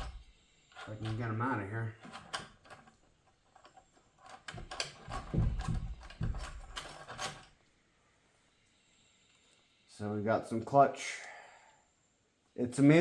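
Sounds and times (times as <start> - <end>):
dull knocks: 5.1 - 6.7.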